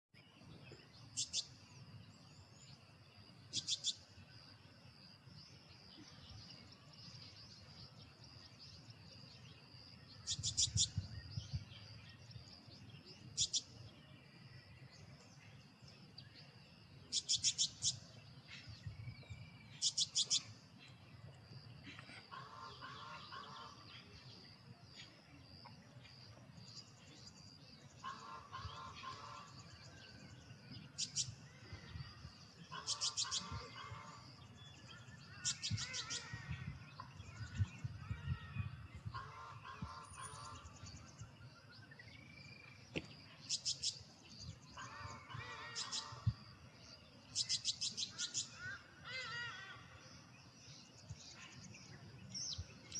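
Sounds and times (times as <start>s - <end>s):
wren singing: 1.0s - 4.2s, 5.7s - 14.1s, 14.8s - 21.0s, 26.2s - 49.3s.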